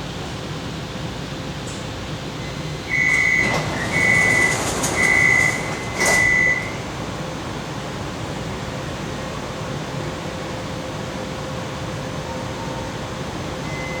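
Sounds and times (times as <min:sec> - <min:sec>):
ventilation hum: 0:00.0 - 0:10.2
high door warning beeps: 0:02.4 - 0:07.1
train door clicks: 0:02.5 - 0:07.5.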